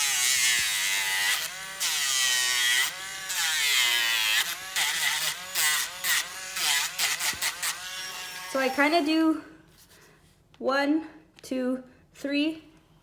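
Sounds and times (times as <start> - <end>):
electric nail grinder whining: 0.0 - 9.1.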